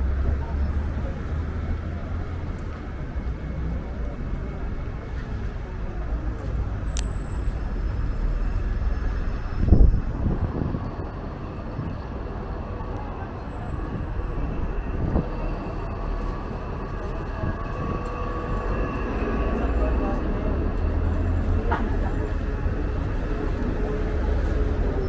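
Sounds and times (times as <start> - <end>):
strong wind buffeting microphone: 9.0 - 19.2.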